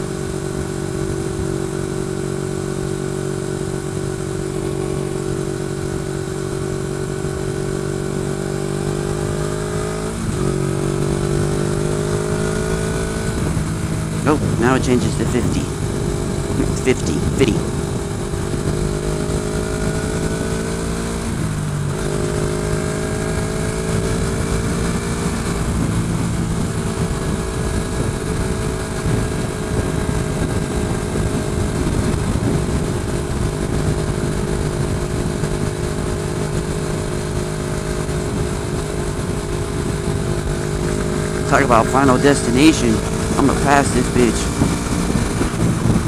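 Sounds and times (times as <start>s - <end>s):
motorcycle engine cruising: 0.0s - 46.0s.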